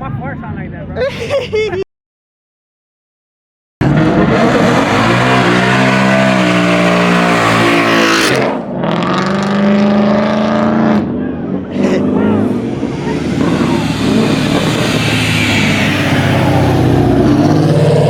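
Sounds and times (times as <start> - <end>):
car engine revving hard: 3.8 - 18.0
harsh rushing noise: 11.8 - 18.0.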